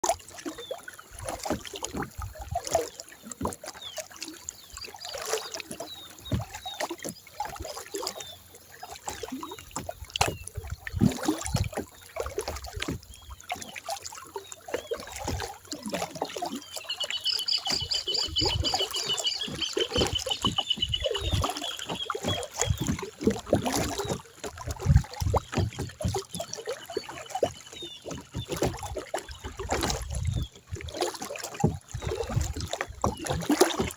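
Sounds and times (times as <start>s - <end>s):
water sloshing against hull: 0.0s - 33.9s
paddle knocks: 6.3s - 6.6s, 17.4s - 24.2s
bird trilling and chirping: 16.7s - 22.4s.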